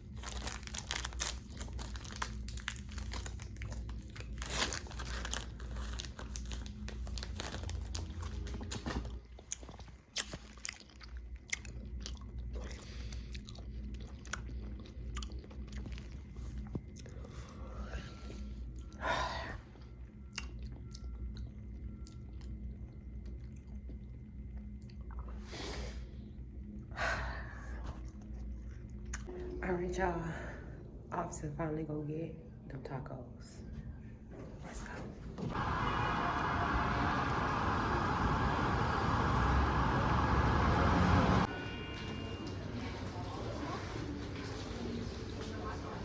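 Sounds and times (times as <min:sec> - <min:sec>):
person crunching chips: 0:00.0 - 0:16.2
steady low hum: 0:00.0 - 0:46.0.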